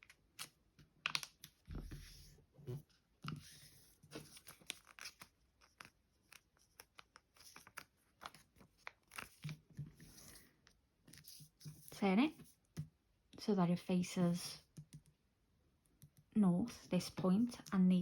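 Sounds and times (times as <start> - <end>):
paper crinkling: 4.1 - 10.5.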